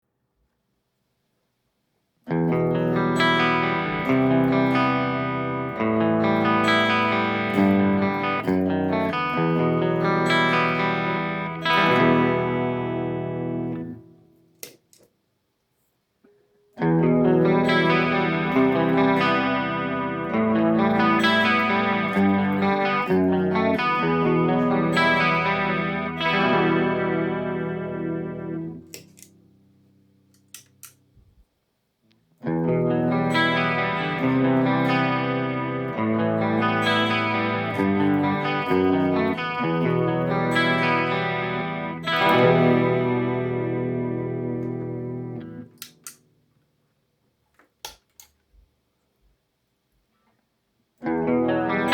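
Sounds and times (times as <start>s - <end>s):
electric guitar chords strummed: 2.3s - 14.3s, 16.8s - 29.8s, 32.4s - 46.2s, 51.0s - 51.9s
short clicks: 45.7s - 46.3s.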